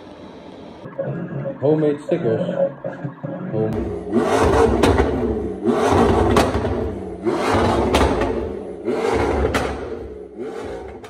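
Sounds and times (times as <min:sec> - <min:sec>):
car engine revving: 0:03.7 - 0:11.0
exhaust crack: 0:03.7 - 0:11.0.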